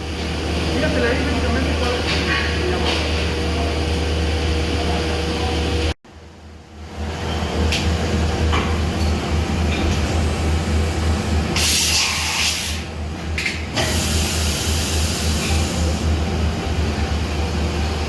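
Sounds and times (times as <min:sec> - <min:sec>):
machining center humming: 0:00.0 - 0:18.0
spray-like hissing: 0:11.6 - 0:12.8, 0:13.8 - 0:15.9.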